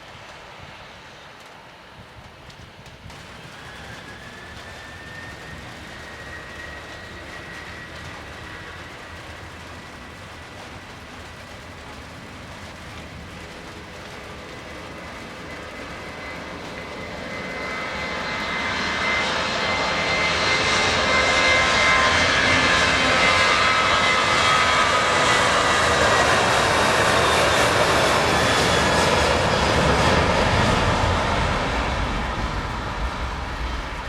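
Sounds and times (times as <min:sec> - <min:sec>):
high engine whine: 0:00.0 - 0:34.0
jet engines roaring: 0:00.0 - 0:34.0.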